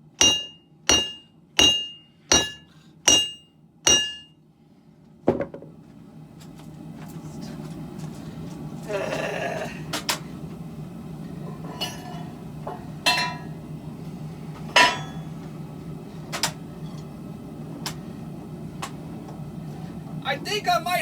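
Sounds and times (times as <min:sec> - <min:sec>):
steady low hum: 0:00.0 - 0:21.0
metallic clanks of steel on steel: 0:00.2 - 0:04.3, 0:14.8 - 0:15.3.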